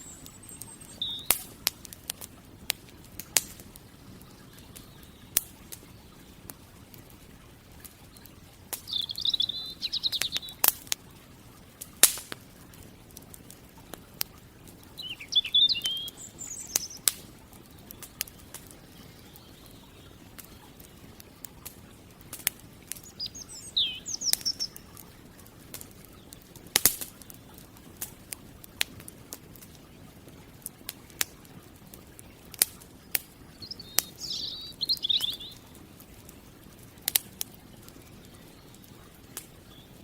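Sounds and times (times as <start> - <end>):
songbird twittering: 0.0 - 1.6, 8.1 - 10.7, 14.9 - 21.3, 23.0 - 25.0, 33.5 - 35.8
campfire crackling and popping: 0.0 - 40.0.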